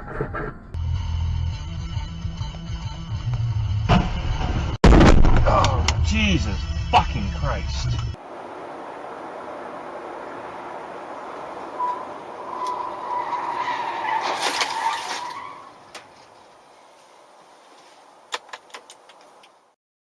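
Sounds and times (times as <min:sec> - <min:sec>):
car road noise: 0:00.0 - 0:19.8.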